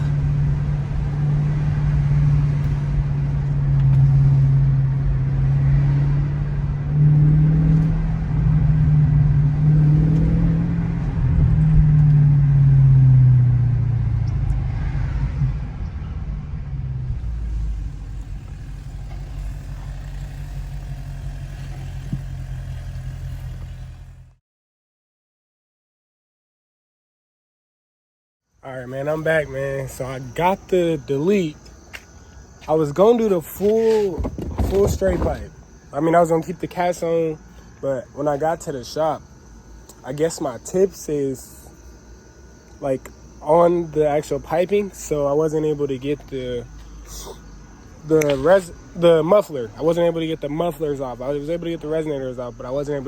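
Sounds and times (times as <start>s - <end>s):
car engine revving: 0.0s - 24.4s, 32.9s - 37.0s.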